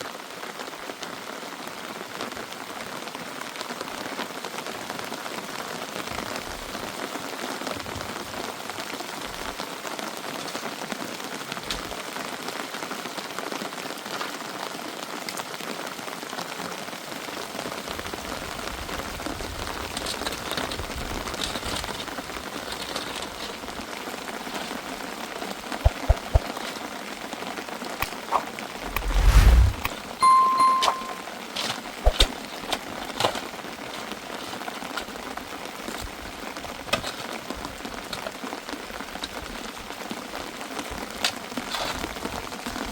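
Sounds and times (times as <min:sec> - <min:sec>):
steady rain falling: 0:00.0 - 0:27.8, 0:32.9 - 0:42.9.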